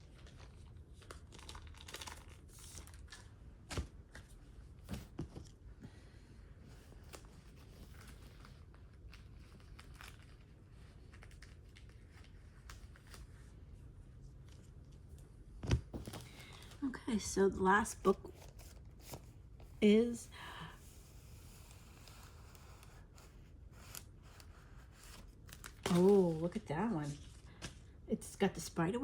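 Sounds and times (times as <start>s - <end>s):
packaging crinkling and tearing: 0.0s - 4.2s, 6.8s - 13.5s, 16.0s - 16.8s, 22.0s - 26.5s.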